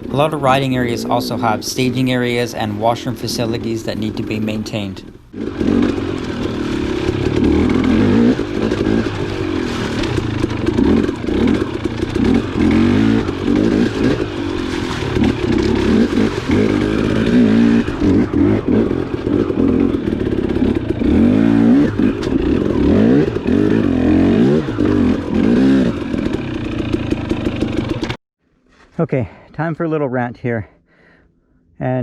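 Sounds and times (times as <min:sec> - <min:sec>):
dirt bike engine revving: 0:00.0 - 0:28.2
bike clatter: 0:05.4 - 0:23.6.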